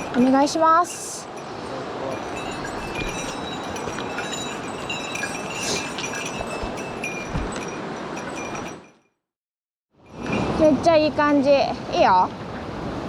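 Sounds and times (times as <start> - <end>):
high chiming clinks: 0.0 - 9.1
mountain stream rushing: 0.8 - 8.9.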